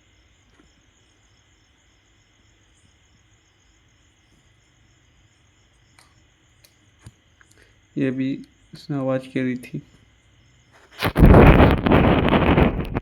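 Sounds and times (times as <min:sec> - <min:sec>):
faint high-pitched hiss: 0:00.0 - 0:13.0.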